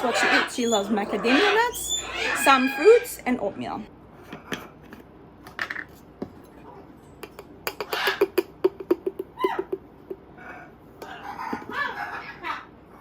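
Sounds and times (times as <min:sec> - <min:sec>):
utensils tapping a dish: 0:07.2 - 0:10.2.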